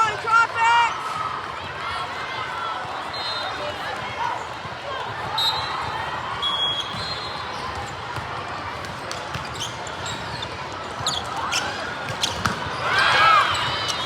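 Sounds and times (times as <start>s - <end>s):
volleyball hit and bouncing: 12.0s - 14.0s.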